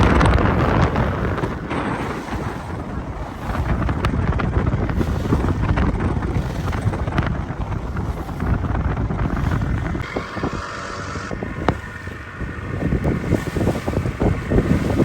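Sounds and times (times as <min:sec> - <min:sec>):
rumble of wind and water: 0:00.0 - 0:15.0
wind buffeting microphone: 0:00.0 - 0:15.0.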